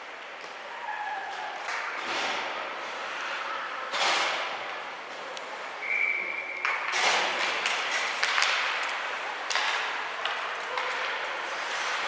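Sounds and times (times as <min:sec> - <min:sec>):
skate and rink noise: 0:00.0 - 0:12.0
hockey sticks and puck clacking: 0:06.5 - 0:12.0.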